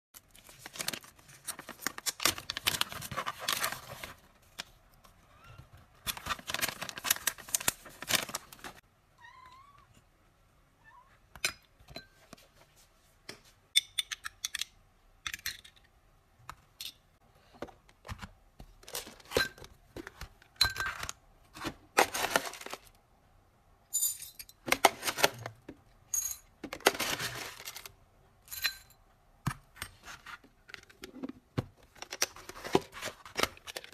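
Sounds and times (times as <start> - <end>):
packaging crinkling: 6.1 - 8.8
cat meowing faintly: 9.2 - 10.0, 10.8 - 11.2.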